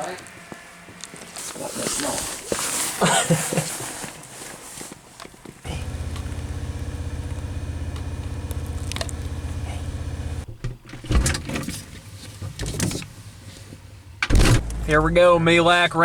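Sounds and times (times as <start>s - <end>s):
vehicle engine running: 5.6s - 10.5s, 13.9s - 15.8s.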